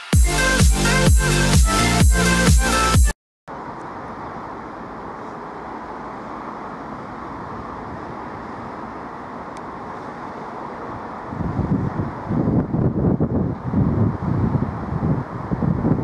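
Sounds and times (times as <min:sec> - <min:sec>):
wind buffeting microphone: 0:10.9 - 0:16.0.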